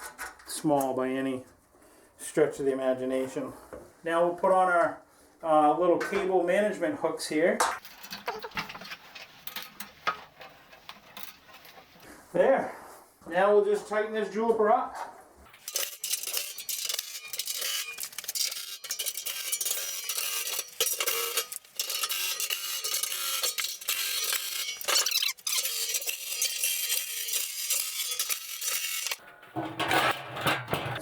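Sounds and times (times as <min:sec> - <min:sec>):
metallic clicking of tools and bolts: 0:15.6 - 0:29.2.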